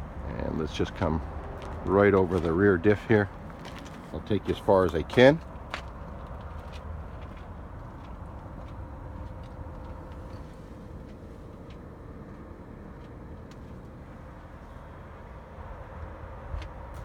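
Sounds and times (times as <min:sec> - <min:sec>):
faint footsteps clicking: 0:01.3 - 0:13.9.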